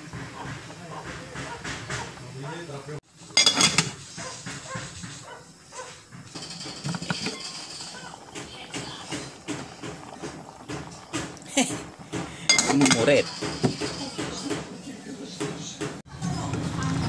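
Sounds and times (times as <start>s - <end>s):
metal pot and lid clattering: 3.2s - 5.2s, 6.1s - 14.8s.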